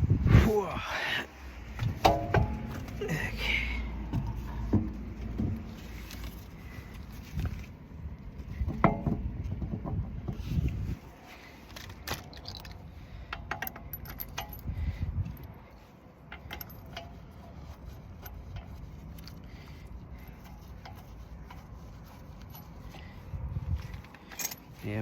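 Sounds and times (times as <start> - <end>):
metal bolts clinking: 1.9 - 3.1, 12.0 - 14.7, 16.2 - 19.8, 23.9 - 25.0
dull low bump: 3.9 - 5.8.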